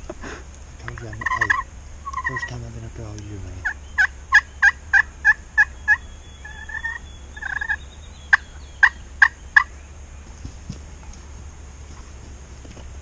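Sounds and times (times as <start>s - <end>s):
turkey yelping: 0.0s - 2.6s, 3.6s - 9.9s.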